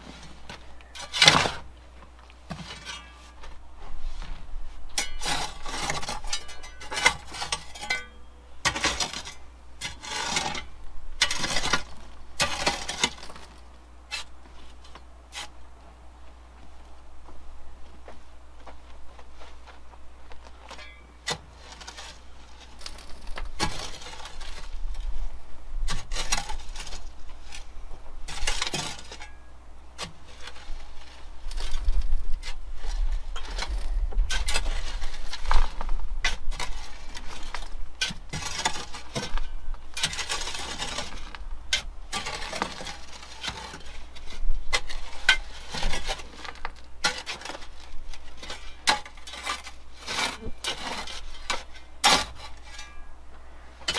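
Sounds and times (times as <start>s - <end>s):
shovels scraping gravelly soil: 0.0s - 15.6s, 19.3s - 53.9s
metal blade clinking on stones: 7.6s - 8.3s.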